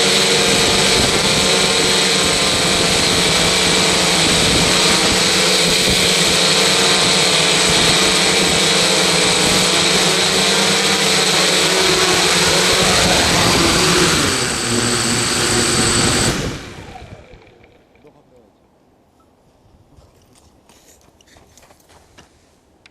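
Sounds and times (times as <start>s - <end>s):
machine noise with high whine: 0.0s - 17.8s.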